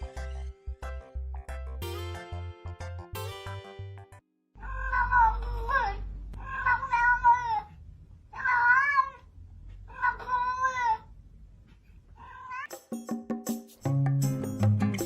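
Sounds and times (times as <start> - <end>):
cat meowing: 4.6 - 7.7, 8.3 - 9.3, 9.9 - 11.1, 12.2 - 12.8
music with percussive clicks: 12.7 - 15.0.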